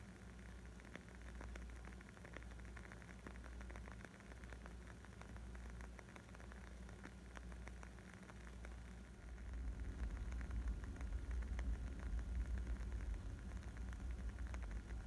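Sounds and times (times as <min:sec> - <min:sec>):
wood fire crackling: 0:00.3 - 0:15.0
low rumble: 0:09.2 - 0:15.0.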